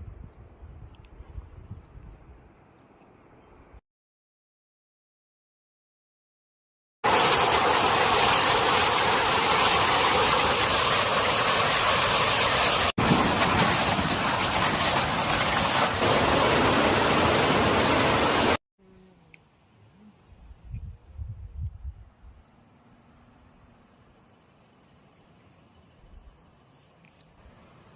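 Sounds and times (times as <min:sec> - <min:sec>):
rushing water: 0:07.0 - 0:18.6.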